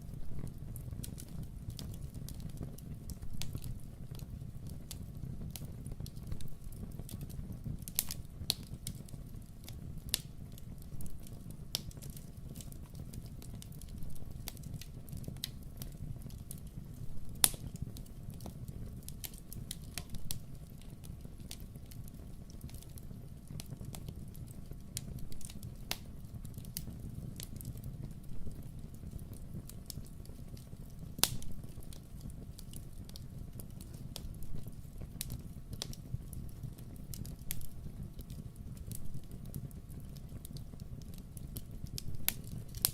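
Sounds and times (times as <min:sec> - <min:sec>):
wood fire crackling: 0:00.0 - 0:42.9
sharp pops of burning wood: 0:00.4 - 0:42.9.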